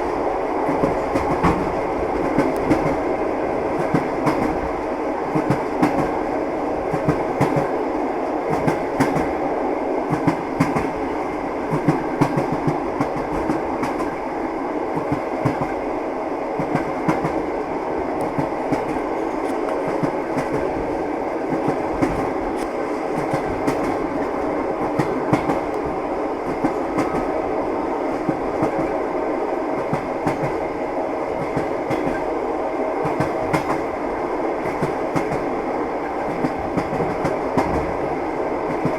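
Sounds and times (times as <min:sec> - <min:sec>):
train wheels clicking over rail joints: 0:00.6 - 0:03.1, 0:03.7 - 0:04.7, 0:05.3 - 0:06.2, 0:06.9 - 0:07.8, 0:08.5 - 0:09.4, 0:10.1 - 0:11.0, 0:11.7 - 0:14.2, 0:14.9 - 0:15.8, 0:18.1 - 0:20.9, 0:21.5 - 0:27.3, 0:29.8 - 0:30.6, 0:31.3 - 0:32.3, 0:33.0 - 0:33.9, 0:34.6 - 0:38.0.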